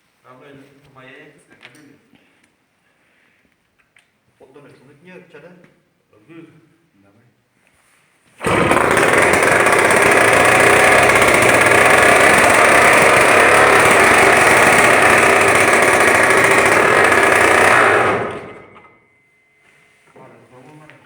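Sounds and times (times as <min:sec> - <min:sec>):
tractor engine running: 0:08.4 - 0:18.9.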